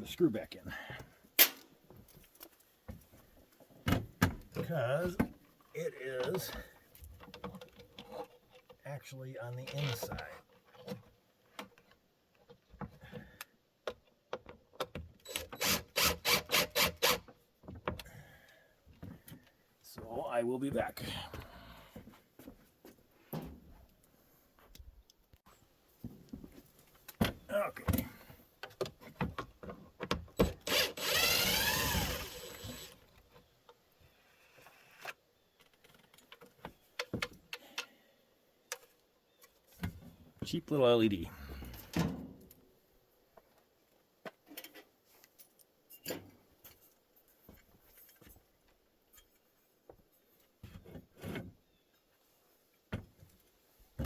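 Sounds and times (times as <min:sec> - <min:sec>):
screwdriver strokes: 0:30.6 - 0:33.0
small power-tool motor running: 0:30.6 - 0:33.0.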